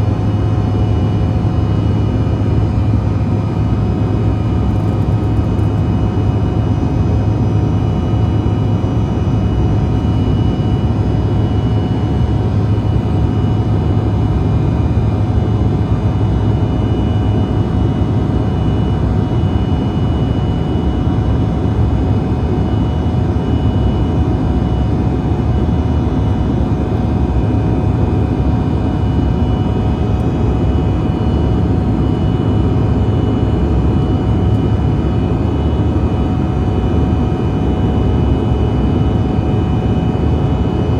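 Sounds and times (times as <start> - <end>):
turbofan whining tones: 0.0 - 40.9
jet cabin low rumble: 1.5 - 18.4.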